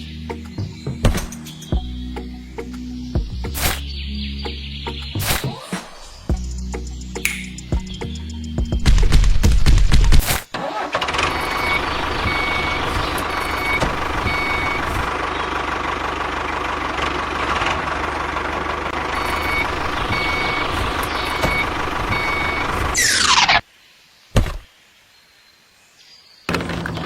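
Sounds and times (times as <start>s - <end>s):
engine running: 10.8s - 23.0s
reversing alarm beeping: 11.3s - 15.1s, 19.2s - 23.1s.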